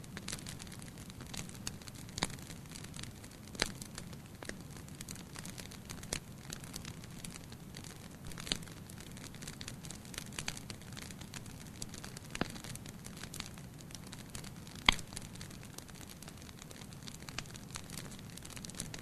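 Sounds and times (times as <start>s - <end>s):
fire crackling: 0.0s - 19.0s
low rumble of flame: 0.0s - 19.0s
sharp pop from fire: 14.8s - 15.2s.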